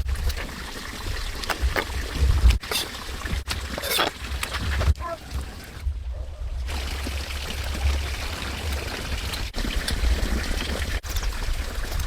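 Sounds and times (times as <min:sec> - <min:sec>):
water pouring: 0:00.0 - 0:05.8, 0:06.6 - 0:12.0
low rumble: 0:04.8 - 0:12.0.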